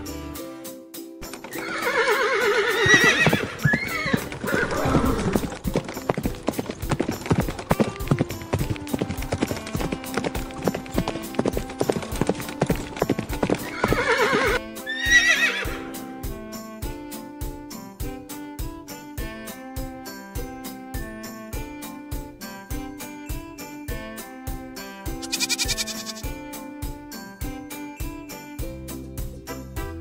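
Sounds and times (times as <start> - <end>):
background music: 0.0 - 30.0
hooves clip-clopping: 1.2 - 15.8, 25.1 - 26.5
horse whinnying: 1.3 - 16.0, 25.2 - 26.3.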